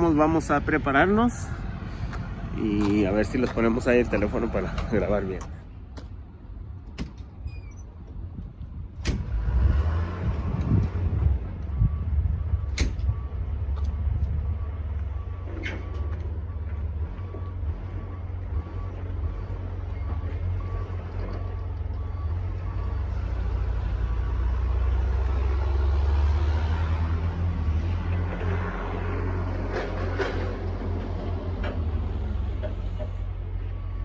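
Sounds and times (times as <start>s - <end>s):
truck engine rumbling: 0.0s - 34.0s
backup alarm beeping: 11.6s - 23.6s, 32.9s - 34.0s.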